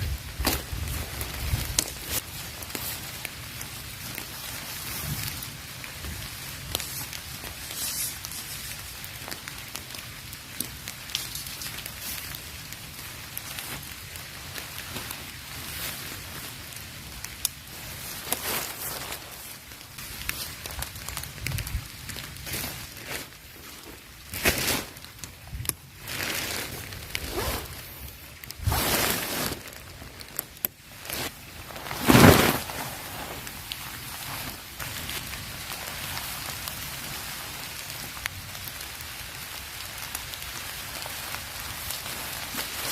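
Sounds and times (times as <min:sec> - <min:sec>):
heavy rain falling: 0:00.0 - 0:42.9
rustling and scraping: 0:17.8 - 0:19.6, 0:26.0 - 0:35.3.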